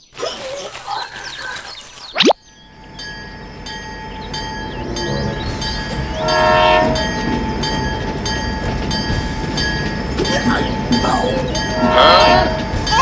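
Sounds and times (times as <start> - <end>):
train clattering: 2.7 - 13.0
train horn: 4.2 - 9.6, 10.6 - 13.0.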